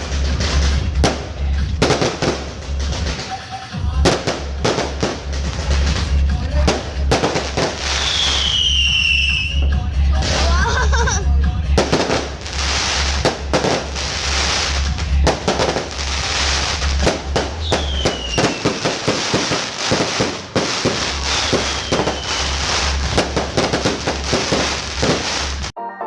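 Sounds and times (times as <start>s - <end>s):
fireworks bangs: 0.0s - 25.8s
fireworks crackling: 0.0s - 25.8s
falling firework whistles: 7.5s - 9.8s, 12.0s - 14.8s, 15.6s - 25.8s.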